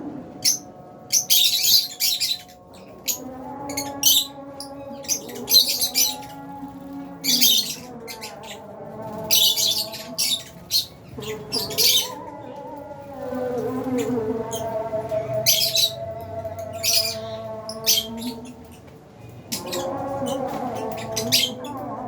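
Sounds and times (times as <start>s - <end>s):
birds chirping and screeching: 0.0s - 22.0s.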